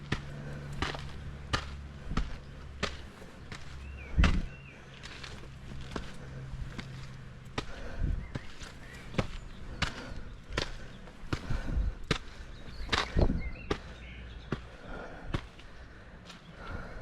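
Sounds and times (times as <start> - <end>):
footsteps walking: 0.0 - 17.0.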